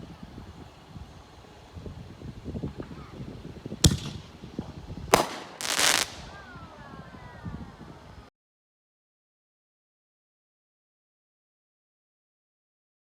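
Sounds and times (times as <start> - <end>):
firework shell bangs: 3.8 - 4.3, 5.1 - 6.4
hissing crackle: 5.1 - 6.6.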